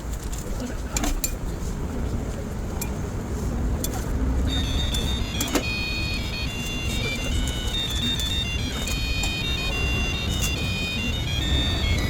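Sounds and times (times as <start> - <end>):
street rumble: 0.0 - 12.0
tinkly electronic jingle: 4.5 - 12.0.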